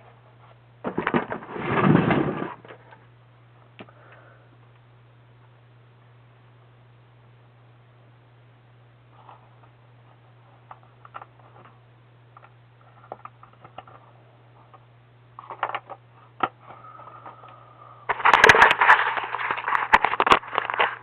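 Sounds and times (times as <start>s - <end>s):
crackling rustling noise: 0.0s - 3.0s, 18.1s - 21.0s
low electrical hum: 0.0s - 21.0s.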